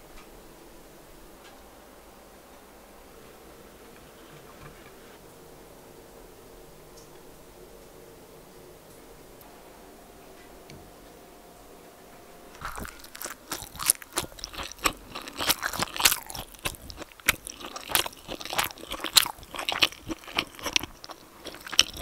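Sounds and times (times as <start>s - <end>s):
moist chewing: 12.5s - 22.0s.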